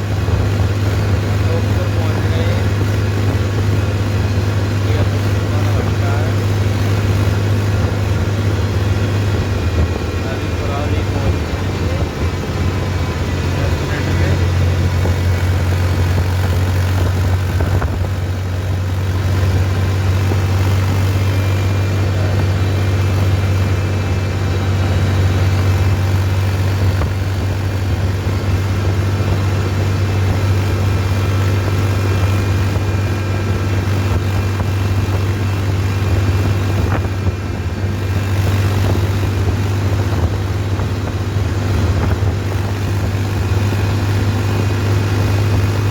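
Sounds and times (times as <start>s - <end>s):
tractor engine droning: 0.0s - 45.9s.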